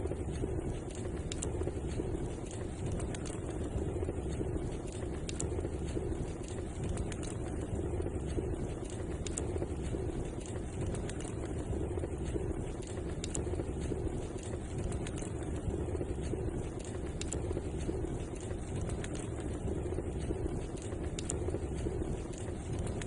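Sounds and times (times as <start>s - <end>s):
fire crackling and popping: 0.0s - 23.0s
fire roaring: 0.0s - 23.0s.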